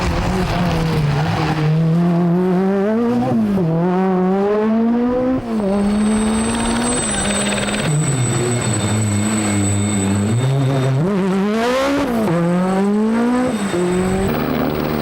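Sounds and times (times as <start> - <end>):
rally car engine revving: 0.0 - 15.0
high whistle: 5.6 - 11.2, 13.3 - 14.4.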